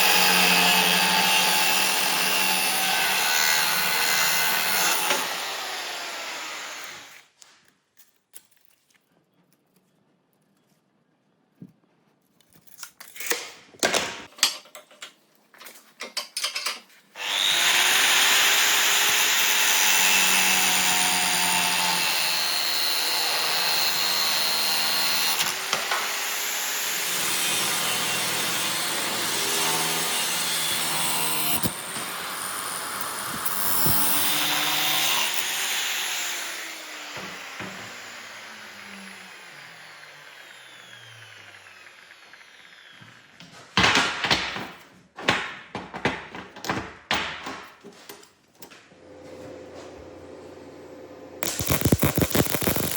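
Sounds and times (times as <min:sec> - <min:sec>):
electric grinder grinding steel: 0:00.0 - 0:07.3, 0:17.2 - 0:43.4, 0:49.3 - 0:52.9.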